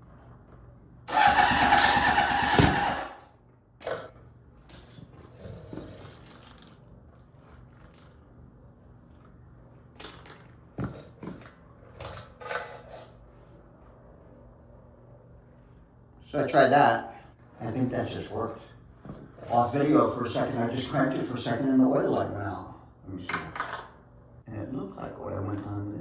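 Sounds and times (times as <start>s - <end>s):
plastic rustling: 5.7s - 8.2s.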